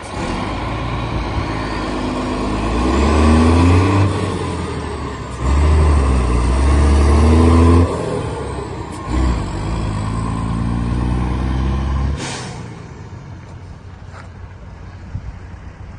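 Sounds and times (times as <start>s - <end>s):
truck diesel engine revving: 0.0s - 15.9s
short hiss of air: 12.2s - 12.8s.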